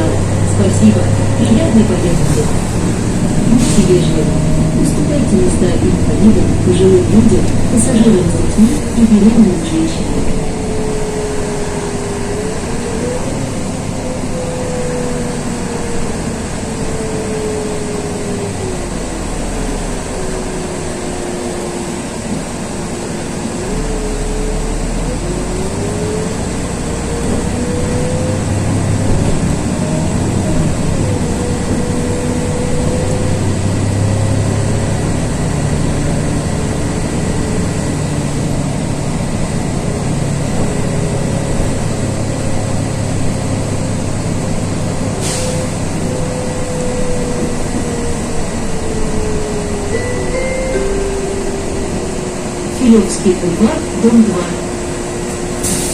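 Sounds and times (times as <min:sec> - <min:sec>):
bus engine whine: 0:00.0 - 0:55.9
road noise: 0:00.0 - 0:55.9.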